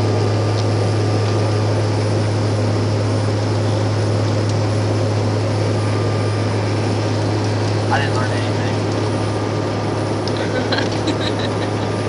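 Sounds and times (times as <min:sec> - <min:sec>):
airliner cabin drone: 0:00.0 - 0:12.0
low hum: 0:00.0 - 0:12.0.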